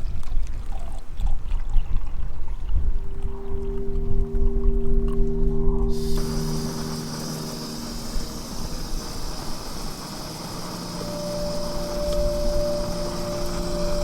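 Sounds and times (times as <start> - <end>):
faint hum of held tones: 2.8 - 14.0.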